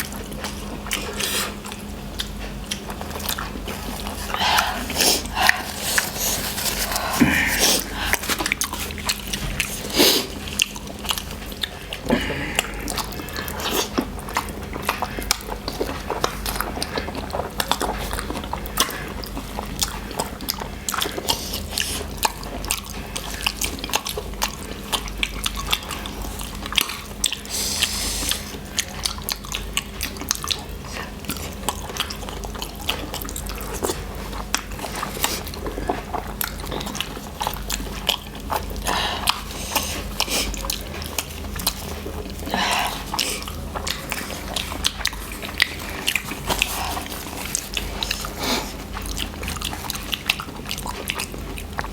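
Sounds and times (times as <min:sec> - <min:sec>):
steady low hum: 0:00.0 - 0:51.9
wet chewing mouth clicks: 0:00.0 - 0:51.9
slurping noodles: 0:02.7 - 0:23.8.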